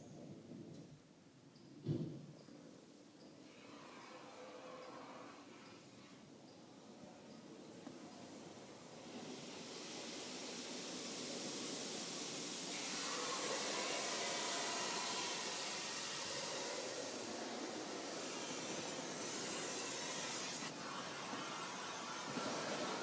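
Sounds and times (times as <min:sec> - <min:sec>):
water jets spraying onto car: 0:08.3 - 0:23.0.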